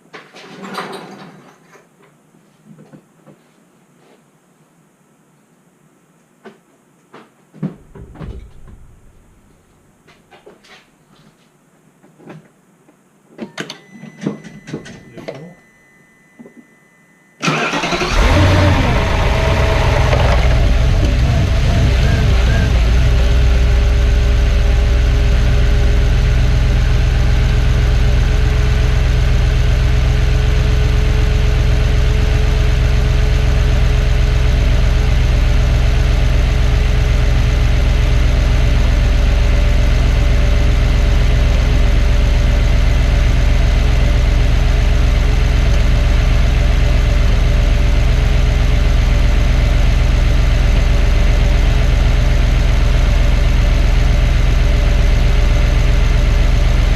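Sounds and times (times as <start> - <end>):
car engine idling: 17.4 - 56.9.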